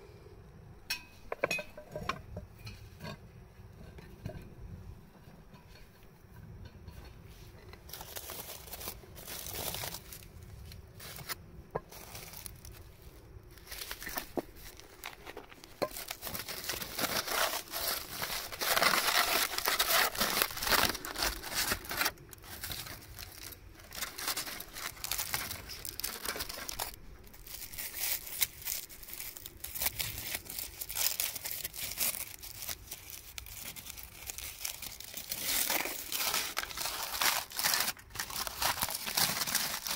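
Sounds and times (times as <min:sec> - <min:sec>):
crisp material crinkling: 0:07.3 - 0:39.9.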